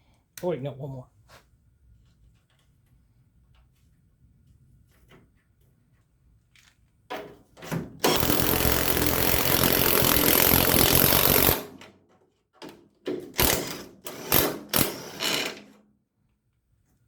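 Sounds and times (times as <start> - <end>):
impact wrench hammering: 8.0 - 11.8, 13.1 - 15.6.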